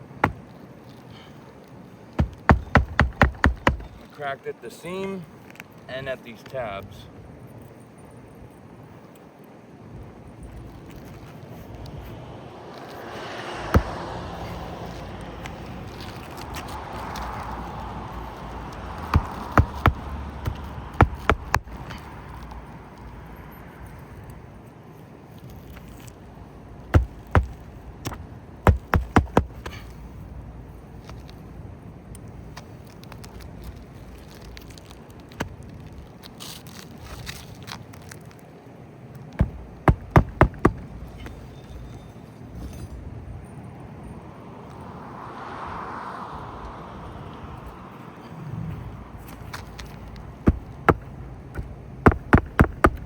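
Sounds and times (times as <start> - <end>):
hammer striking roofing nails: 0.2 - 0.6, 2.2 - 4.1, 13.8 - 15.0, 18.4 - 22.1, 26.9 - 30.0, 39.4 - 41.3, 49.8 - 53.0.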